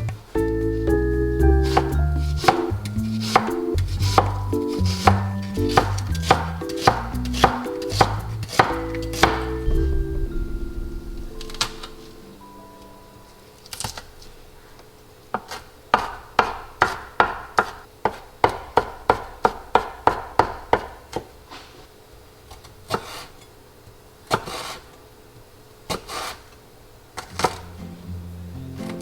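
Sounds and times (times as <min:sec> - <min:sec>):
knife chopping on wooden board: 0:01.6 - 0:09.7, 0:15.4 - 0:21.0.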